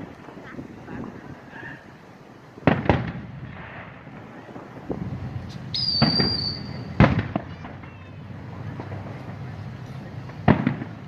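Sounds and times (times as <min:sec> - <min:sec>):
firework bangs: 0:00.0 - 0:11.0
firework pops: 0:02.6 - 0:11.0
whistling firework: 0:02.6 - 0:11.0.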